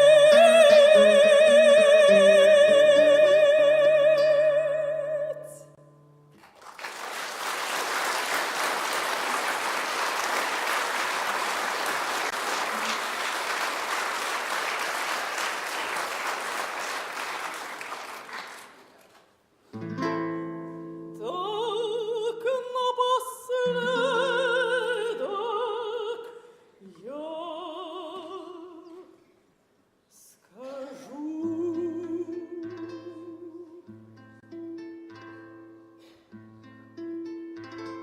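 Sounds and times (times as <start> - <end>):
audience applause: 6.4 - 19.2.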